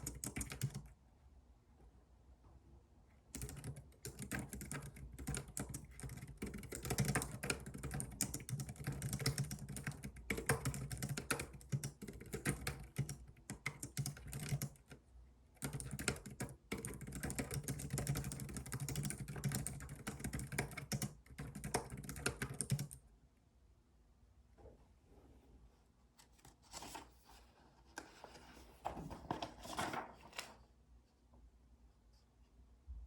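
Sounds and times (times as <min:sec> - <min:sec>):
fast typing on computer keyboard: 0:00.0 - 0:00.9, 0:03.3 - 0:15.0, 0:15.6 - 0:23.0.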